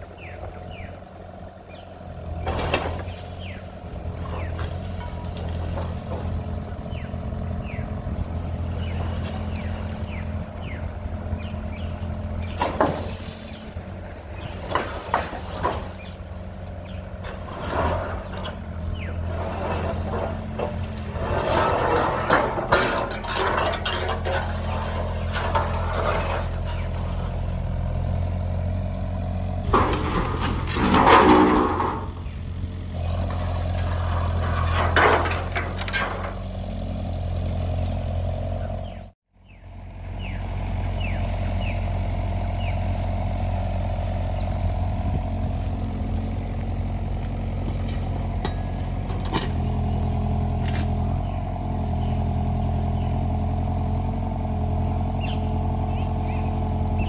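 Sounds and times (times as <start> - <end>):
engine running: 0.0 - 57.0
loud clattering: 11.8 - 28.0, 29.6 - 32.4, 33.0 - 36.6.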